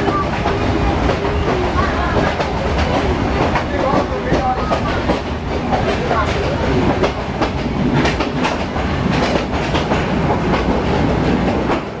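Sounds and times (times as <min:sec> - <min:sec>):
train rumbling on tracks: 0:00.0 - 0:12.0
wheels clicking over rails: 0:00.0 - 0:12.0.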